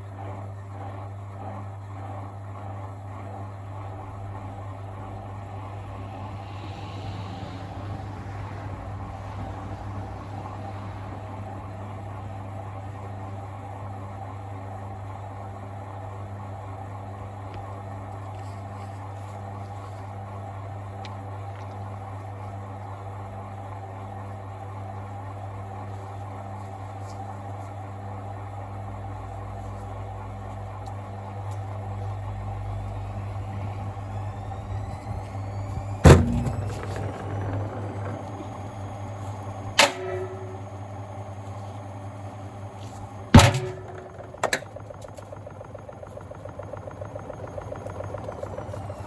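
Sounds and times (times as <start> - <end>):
washing machine humming: 0.0 - 49.0
fast even ticking: 43.4 - 49.0.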